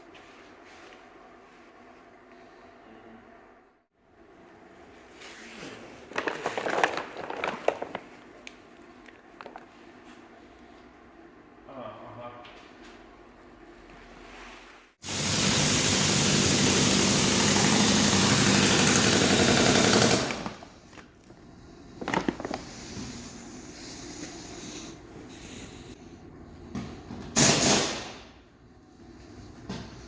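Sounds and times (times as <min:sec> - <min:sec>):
rapid mechanical hammering: 0:15.0 - 0:20.6.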